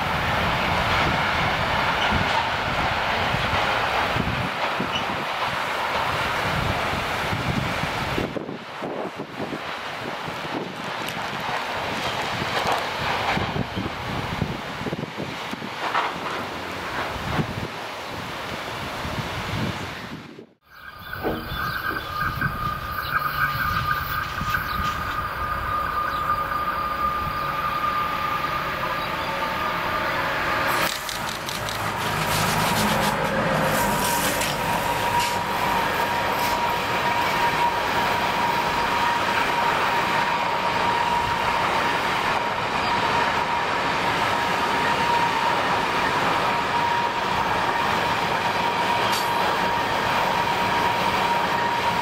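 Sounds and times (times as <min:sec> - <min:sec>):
thin wheel whine: 0:20.7 - 0:41.6
freight wagons rolling over rails: 0:30.6 - 0:41.3.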